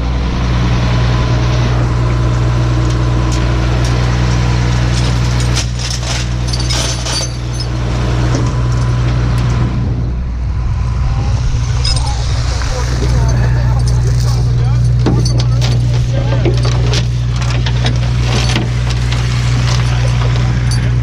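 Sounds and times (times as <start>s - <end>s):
truck engine idling: 0.0s - 21.0s
chains clinking and rattling: 4.8s - 8.0s, 11.6s - 21.0s.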